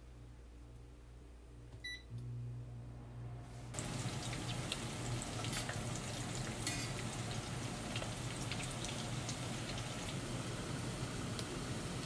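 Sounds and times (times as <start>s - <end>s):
steady low hum: 0.0s - 12.0s
potatoes sizzling in oil: 3.8s - 12.0s.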